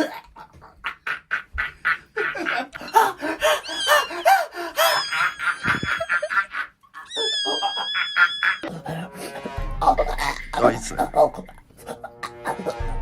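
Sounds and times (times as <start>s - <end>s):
squeaky cartoonish voices: 7.0s - 8.7s.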